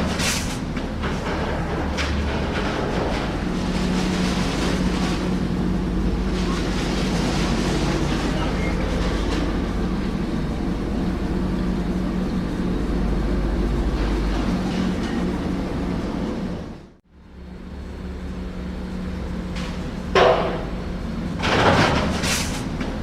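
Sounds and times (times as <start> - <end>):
low hum: 0.0 - 22.2
construction machinery engine rumble: 0.0 - 23.0.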